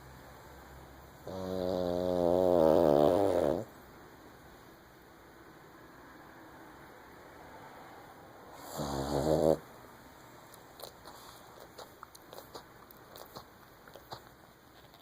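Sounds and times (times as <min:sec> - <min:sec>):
dog snoring: 0:01.2 - 0:03.7, 0:08.5 - 0:09.7.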